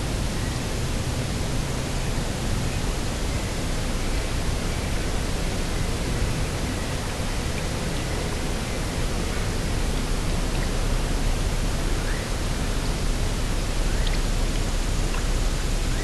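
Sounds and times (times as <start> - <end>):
sea: 0.0 - 16.0
wind rumbling on microphone: 0.0 - 16.0.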